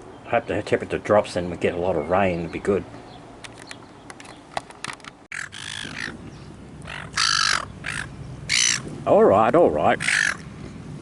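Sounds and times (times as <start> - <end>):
large bird cawing: 5.3 - 8.9, 10.0 - 10.5.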